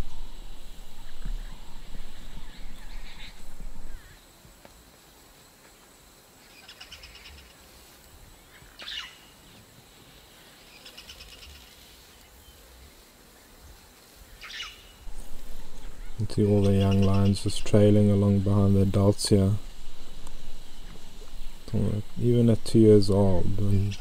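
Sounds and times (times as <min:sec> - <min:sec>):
low rumble: 0:00.0 - 0:04.1, 0:15.0 - 0:24.0
sharp sweeping bird call: 0:00.0 - 0:04.2, 0:14.4 - 0:22.6
trilled bird calls: 0:00.0 - 0:04.2, 0:14.4 - 0:24.0.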